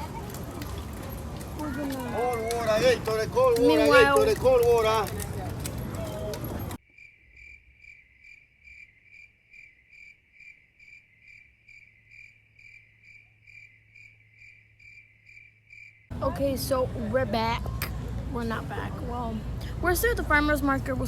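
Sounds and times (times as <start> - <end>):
cricket chirping: 6.8 - 16.2.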